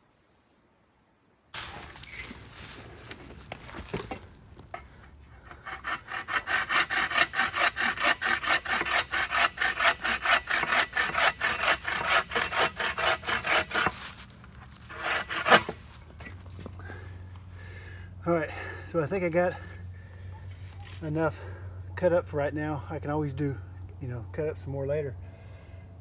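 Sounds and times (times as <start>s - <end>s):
hand saw cutting wood: 5.4s - 16.0s.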